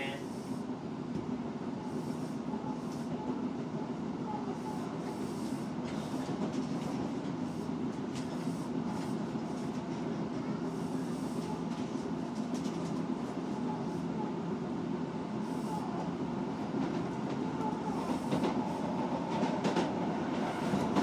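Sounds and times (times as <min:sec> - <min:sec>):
train wheels rumbling on rails: 0:04.5 - 0:21.0.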